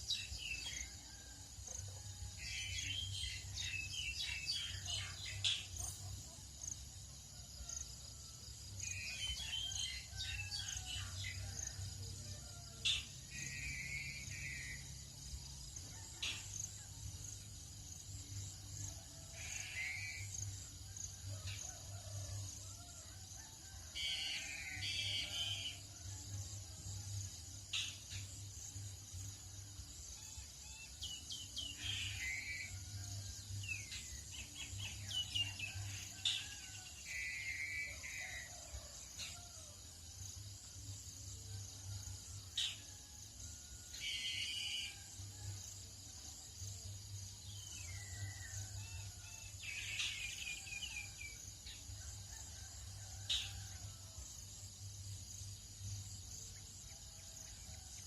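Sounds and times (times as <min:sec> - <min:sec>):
high insect drone: 0:00.0 - 0:58.0
birds chirping and trilling: 0:02.4 - 0:06.0, 0:47.5 - 0:51.9.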